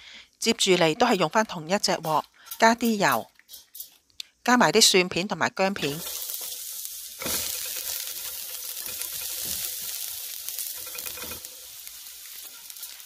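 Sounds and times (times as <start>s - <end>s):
garlic sizzling in hot oil: 5.6s - 13.0s.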